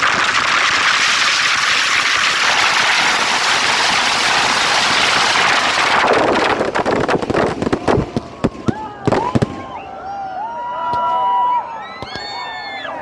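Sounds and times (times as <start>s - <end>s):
firecrackers crackling: 0.0s - 10.0s
firework bangs: 0.0s - 10.0s.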